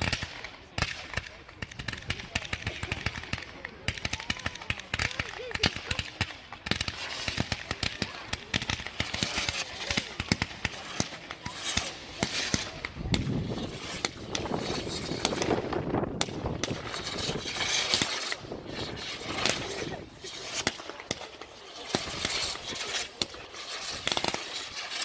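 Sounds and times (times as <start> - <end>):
fireworks crackling and popping: 0.0 - 25.0
rough rushing noise: 8.9 - 25.0.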